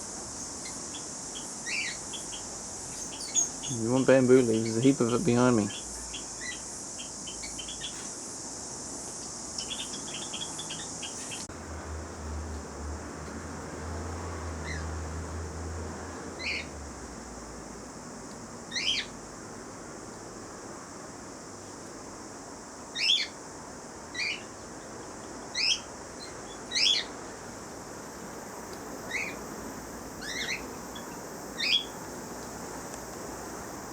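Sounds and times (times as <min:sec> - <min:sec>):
parrots chirping: 0:00.6 - 0:04.8, 0:16.4 - 0:16.7, 0:18.7 - 0:19.1, 0:23.0 - 0:23.4, 0:25.5 - 0:27.2, 0:29.0 - 0:29.4, 0:30.2 - 0:32.0.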